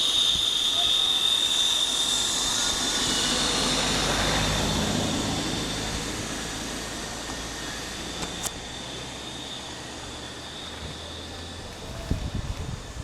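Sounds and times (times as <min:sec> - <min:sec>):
wind rushing past microphone: 0:10.8 - 0:13.0.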